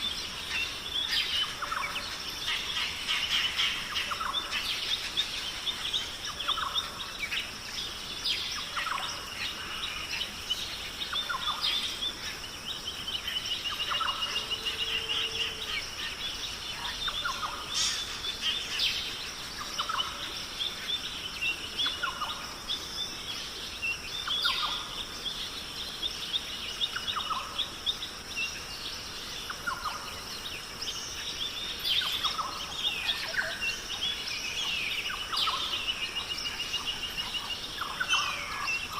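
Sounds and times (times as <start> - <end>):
birds chirping: 0.0 - 38.9
outdoor ambient hiss: 0.0 - 38.9
bird trill: 13.7 - 20.8.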